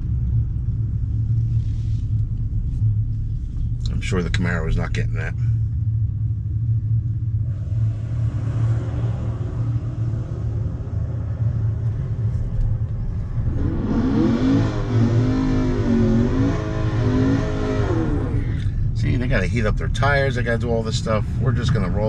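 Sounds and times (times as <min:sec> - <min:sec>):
car engine idling hum: 0:00.0 - 0:22.0
car engine revving high: 0:07.4 - 0:22.0.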